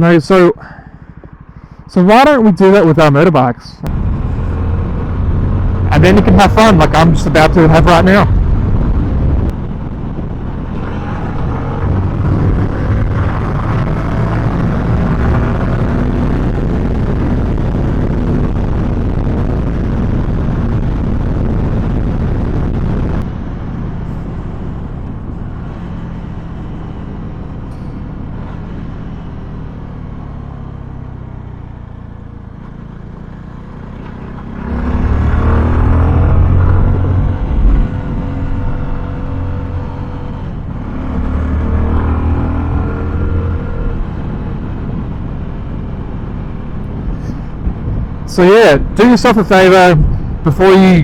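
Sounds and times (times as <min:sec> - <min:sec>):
motorcycle engine revving: 0:03.8 - 0:49.0
wind rushing: 0:03.9 - 0:27.6, 0:34.6 - 0:51.0.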